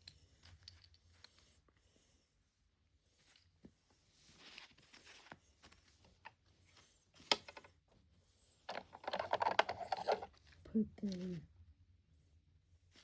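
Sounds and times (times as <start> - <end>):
plastic toys clattering: 8.7 - 10.4
plastic toys clicking and rustling: 8.7 - 11.3.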